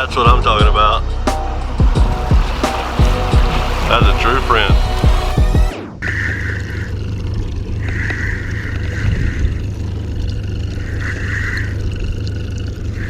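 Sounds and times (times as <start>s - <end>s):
boat motor droning: 0.0s - 6.0s
higher hiss: 1.0s - 5.9s.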